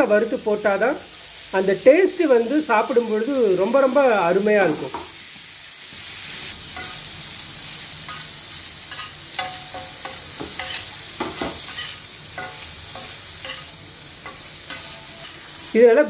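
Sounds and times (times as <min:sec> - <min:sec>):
cheese sizzling in butter: 0:00.0 - 0:16.0
steel spatula scraping griddle: 0:08.9 - 0:15.6.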